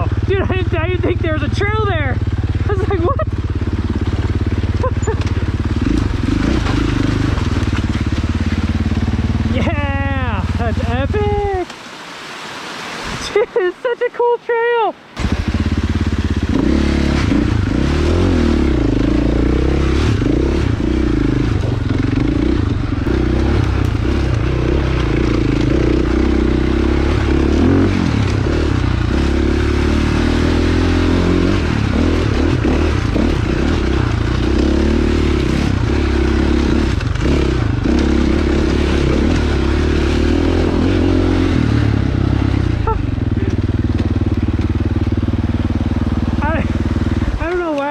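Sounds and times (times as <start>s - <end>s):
dirt bike engine running: 0.0s - 11.7s, 15.2s - 47.9s.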